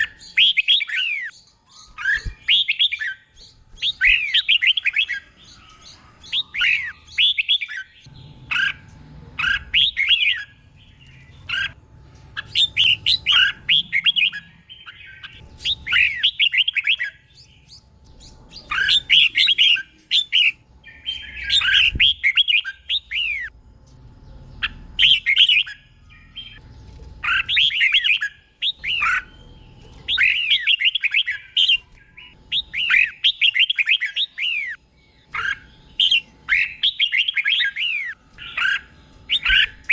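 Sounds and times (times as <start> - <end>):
bird singing warbled phrases: 0.0 - 39.9
faint low hum: 0.0 - 39.9.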